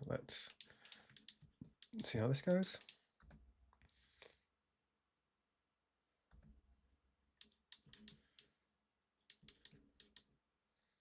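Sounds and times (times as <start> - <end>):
computer mouse clicks: 0.5 - 2.2, 2.8 - 4.0, 7.4 - 8.6, 9.2 - 10.3.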